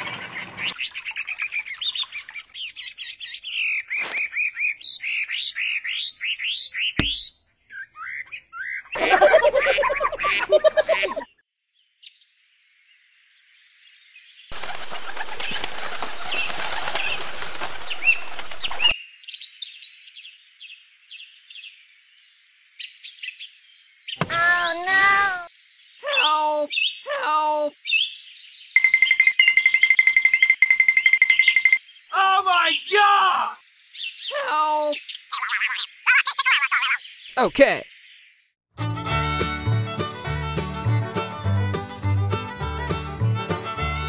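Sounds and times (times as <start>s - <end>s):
bird chirps: 0.0s - 9.0s, 22.8s - 33.0s
flapping wings: 14.5s - 19.0s.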